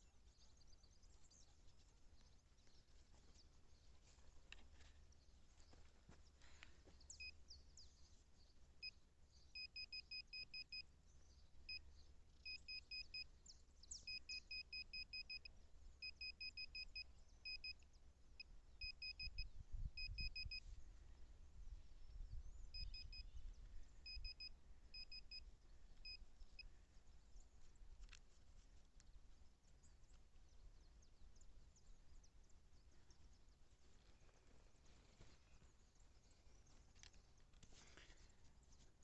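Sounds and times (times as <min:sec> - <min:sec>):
metal detector beeps: 0:09.6 - 0:10.9, 0:12.4 - 0:13.3, 0:14.0 - 0:17.8, 0:18.8 - 0:20.6, 0:22.7 - 0:23.4, 0:24.0 - 0:25.4, 0:26.0 - 0:26.7.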